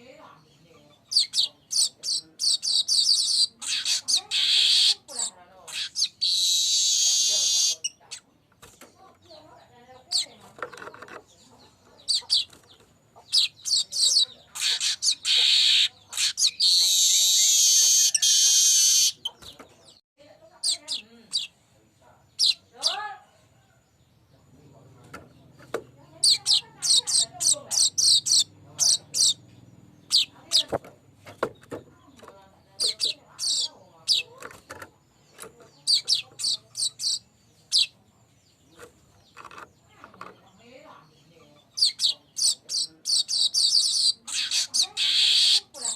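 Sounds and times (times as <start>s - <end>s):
bird chirping: 0.0s - 45.9s
bird buzzing wheeze: 6.2s - 7.8s.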